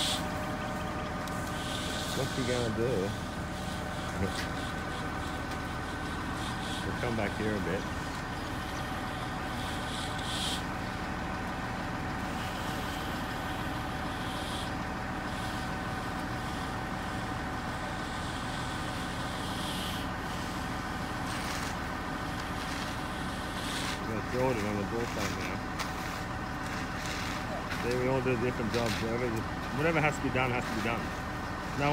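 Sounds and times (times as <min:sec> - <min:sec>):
diesel truck engine running: 0:00.0 - 0:31.9.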